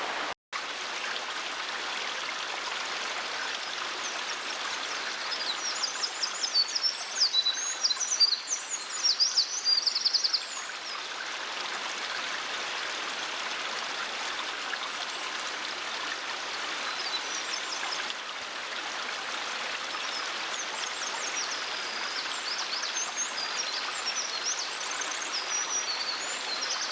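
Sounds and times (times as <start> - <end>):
stream rushing: 0.0 - 3.2.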